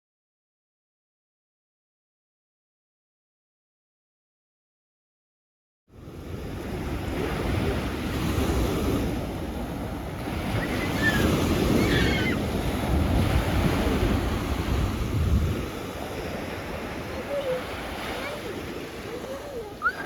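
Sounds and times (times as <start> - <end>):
sea waves washing ashore: 5.9 - 20.0
wind buffeting microphone: 6.6 - 20.0.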